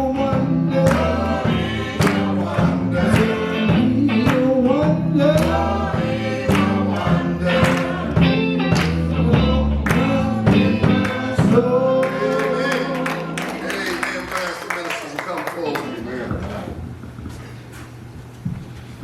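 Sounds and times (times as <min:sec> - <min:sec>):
bass: 0:00.0 - 0:14.6
choir singing: 0:00.0 - 0:14.6
steady drum beat: 0:00.1 - 0:15.4.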